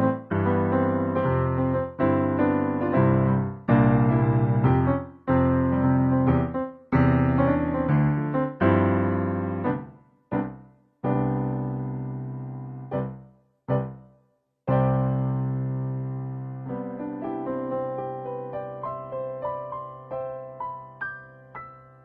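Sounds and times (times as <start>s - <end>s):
piano chords ringing: 0.0s - 14.0s.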